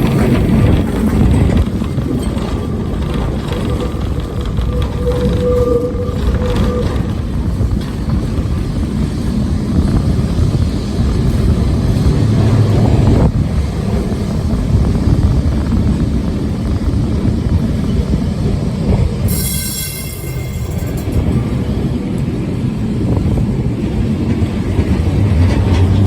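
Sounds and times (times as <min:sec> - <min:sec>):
electric tram rumbling on rails: 0:00.0 - 0:26.0.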